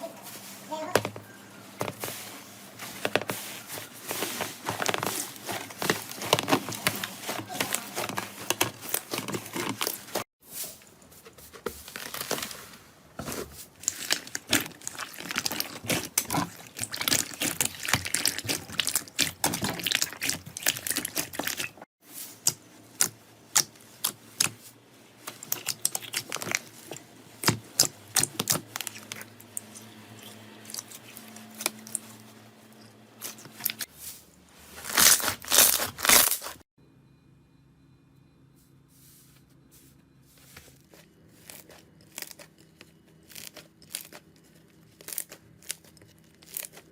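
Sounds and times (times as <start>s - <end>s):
slime squelching: 13.2s - 33.9s, 40.8s - 46.9s
slime crackling and popping: 13.8s - 21.8s, 41.4s - 46.9s.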